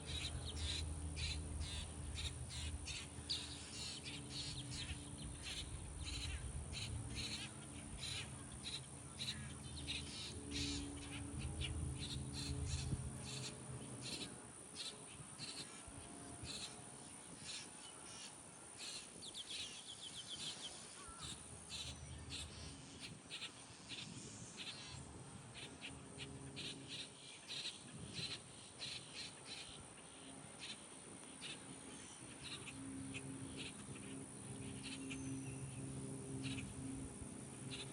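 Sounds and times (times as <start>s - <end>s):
low steady hum: 0.0s - 37.9s
grackles calling: 0.1s - 15.7s.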